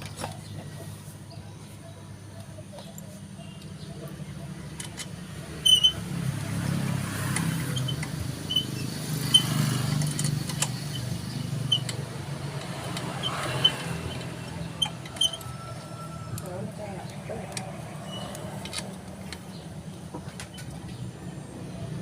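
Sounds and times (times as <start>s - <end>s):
vehicle engine rumbling: 0.0s - 22.0s
short metallic clinks: 7.2s - 15.7s.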